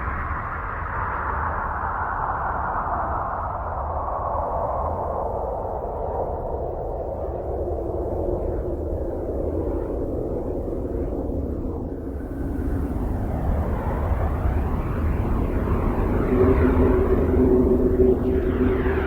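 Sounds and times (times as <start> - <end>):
steady rumbling rush of noise: 12.1 - 19.0.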